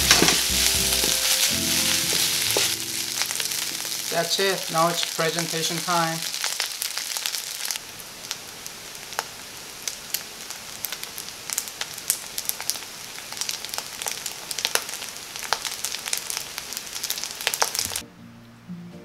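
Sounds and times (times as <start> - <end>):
oil popping and crackling: 0.0 - 18.0
rice sizzling in a wok: 0.0 - 18.0.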